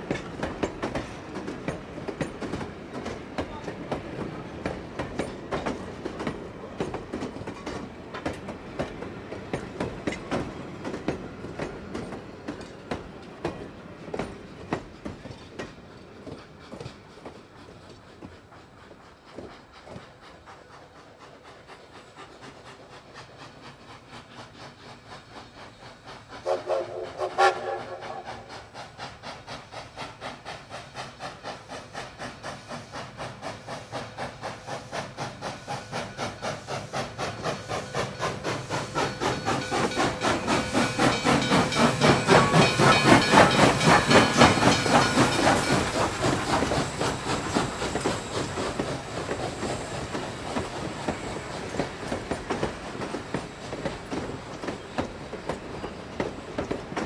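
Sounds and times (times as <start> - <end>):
steam locomotive chugging: 0.0 - 57.0
train whistle blast: 26.4 - 28.5.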